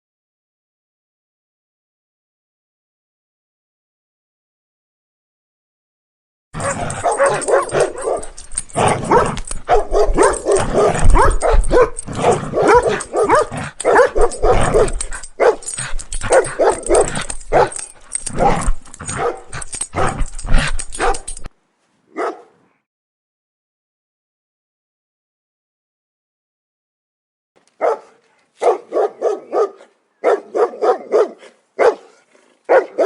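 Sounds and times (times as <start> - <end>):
dog barking: 6.6 - 21.5, 22.1 - 22.6, 27.8 - 33.0.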